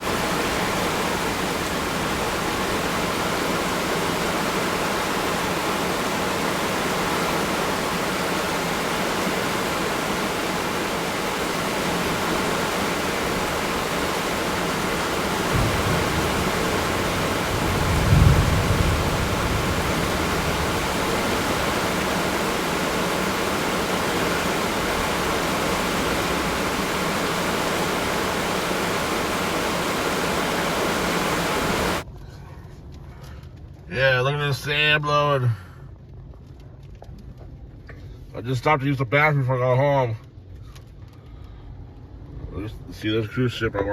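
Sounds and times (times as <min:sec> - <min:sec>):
strong storm wind rushing: 0:00.0 - 0:32.0
wind buffeting microphone: 0:12.2 - 0:32.0.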